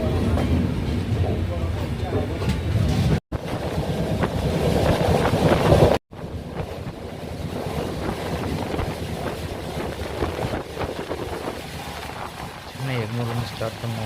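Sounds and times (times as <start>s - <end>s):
train rumbling at speed: 0.0s - 14.0s
wind noise on microphone: 2.7s - 12.8s.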